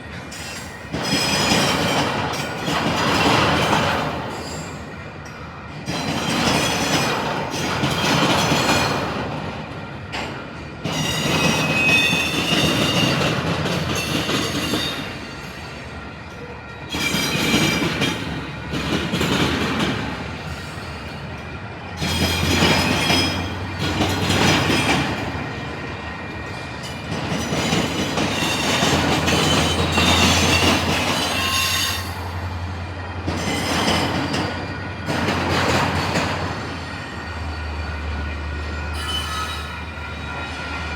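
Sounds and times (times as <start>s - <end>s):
train wheels clattering over crossing: 0.0s - 40.9s
metallic wheel squeal: 28.3s - 32.4s, 37.6s - 40.9s.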